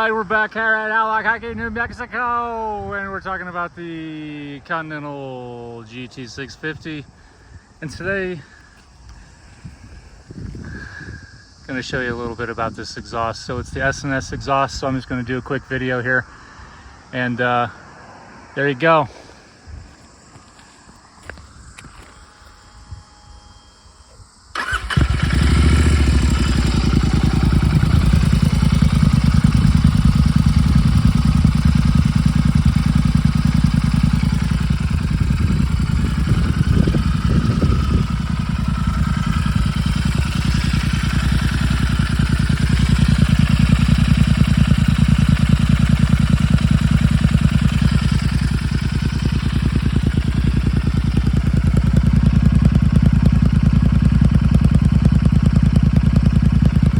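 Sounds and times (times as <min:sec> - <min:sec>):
motorcycle engine starting and idling: 0:05.9 - 0:12.9, 0:20.0 - 0:56.9.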